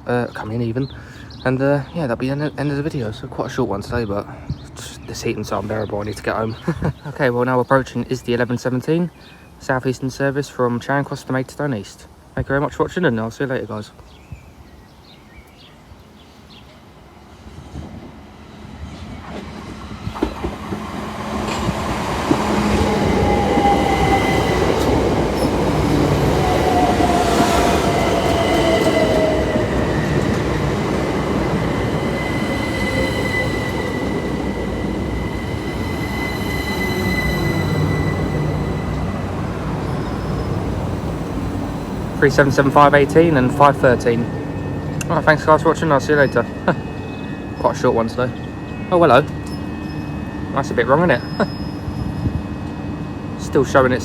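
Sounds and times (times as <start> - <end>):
electric train arriving: 15.0 - 54.0
train motor whine: 20.3 - 47.6
high brake squeal: 31.4 - 52.6.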